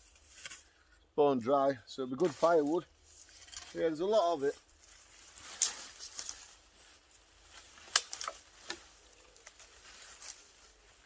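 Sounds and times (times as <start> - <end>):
dry twigs snapping: 5.2 - 10.8.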